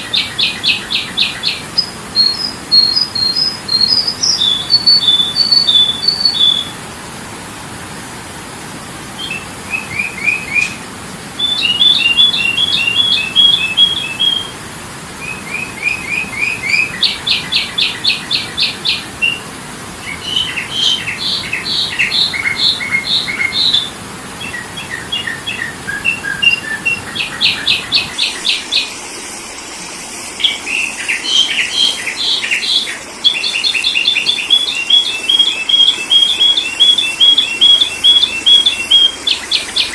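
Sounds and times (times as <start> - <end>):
bird chirping and trilling: 0.0 - 6.8, 9.2 - 10.8, 11.4 - 14.6, 15.2 - 29.2, 29.9 - 39.9.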